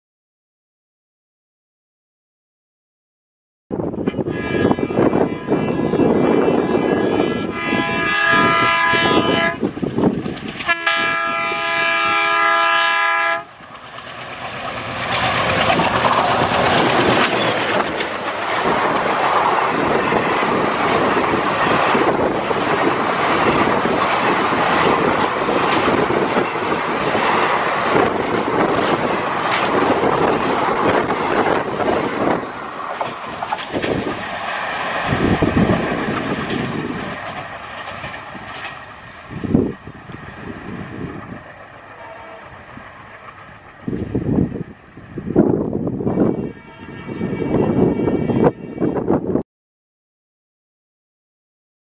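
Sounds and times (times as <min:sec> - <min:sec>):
diesel locomotive engine: 0:03.8 - 0:49.4
train horn blasts: 0:04.1 - 0:09.7, 0:10.6 - 0:13.5, 0:41.9 - 0:42.7, 0:45.9 - 0:49.4
wheels clattering over rail joints: 0:13.5 - 0:19.4, 0:22.6 - 0:39.3.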